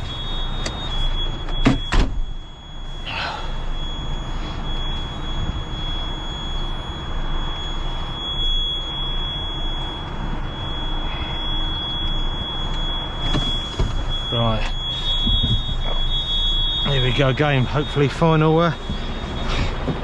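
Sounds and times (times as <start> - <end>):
truck diesel engine running: 0.0 - 20.0
high-pitched electronic buzzer: 8.3 - 12.4.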